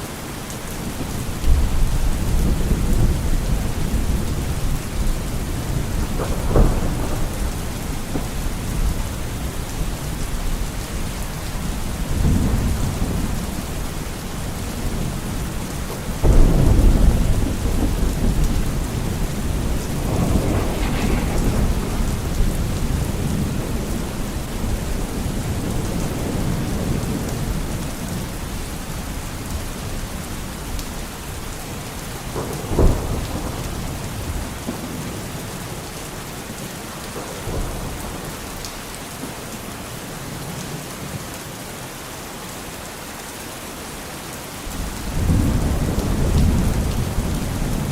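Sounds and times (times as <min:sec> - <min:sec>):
rain falling: 0:00.0 - 0:47.9
thunder rumbling: 0:00.8 - 0:28.6, 0:32.1 - 0:35.8, 0:44.7 - 0:47.9.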